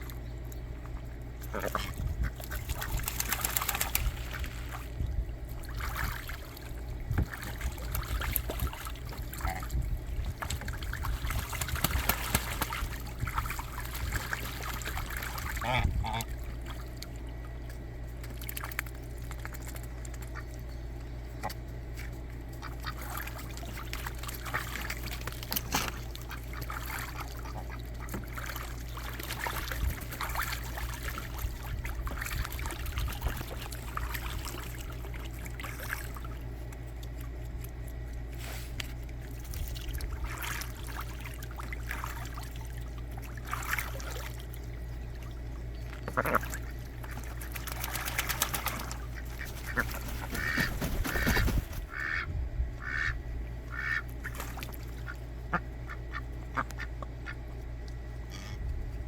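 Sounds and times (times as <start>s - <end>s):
ducks splashing in water: 0.0s - 58.6s
steady low hum: 0.0s - 59.0s
ducks quacking: 11.9s - 16.8s, 22.4s - 31.2s, 46.0s - 57.4s, 58.2s - 58.7s.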